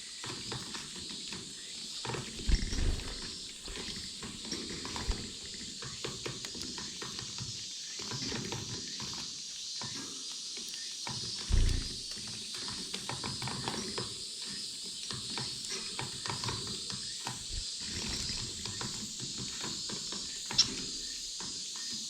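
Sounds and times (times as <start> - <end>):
finches chirping: 0.2 - 10.0, 10.6 - 12.8, 13.6 - 22.0
low rustling of movement: 2.2 - 5.7, 11.5 - 12.1.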